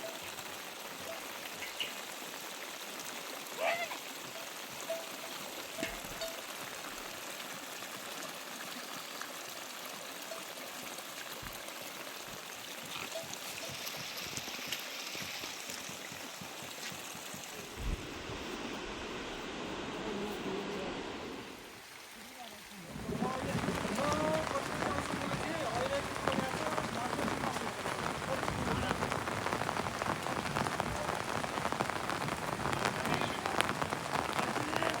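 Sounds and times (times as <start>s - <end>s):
heavy rain: 0.0s - 14.4s, 15.2s - 35.0s
rushing runoff water: 0.0s - 35.0s
low thump: 17.7s - 18.5s.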